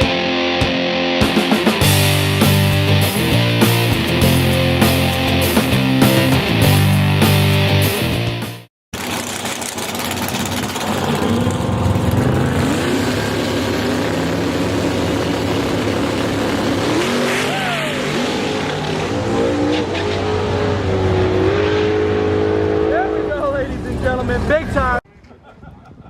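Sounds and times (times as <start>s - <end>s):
drag race car engines revving: 9.0s - 25.0s.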